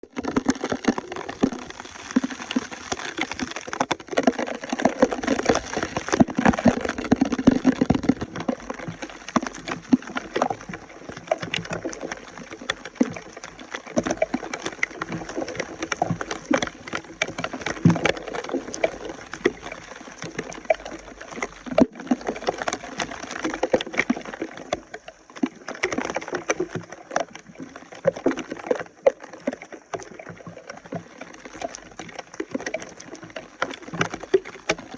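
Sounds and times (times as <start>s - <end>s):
water splashing and sloshing: 0.0s - 34.9s.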